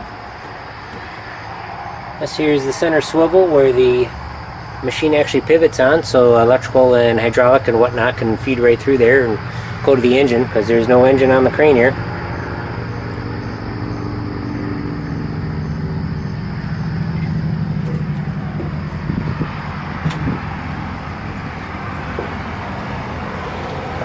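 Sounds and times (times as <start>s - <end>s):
diesel engine idling: 0.0s - 24.0s
faint knocks: 22.1s - 22.6s.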